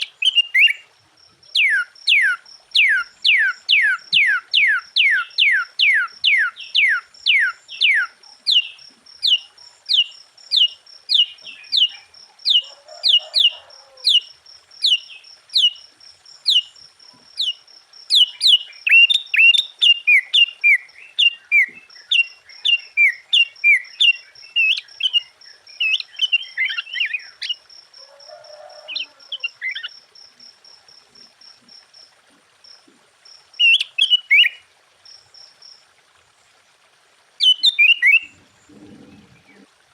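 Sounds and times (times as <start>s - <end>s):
bird singing whistled notes: 0.0s - 0.8s, 1.5s - 12.7s, 14.1s - 15.8s, 17.4s - 27.6s, 37.4s - 38.4s.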